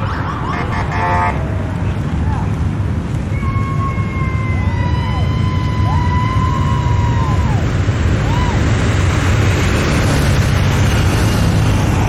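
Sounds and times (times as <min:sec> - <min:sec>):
siren whoops: 0:00.0 - 0:01.4, 0:03.3 - 0:08.8
motorcycles droning past: 0:06.2 - 0:12.0.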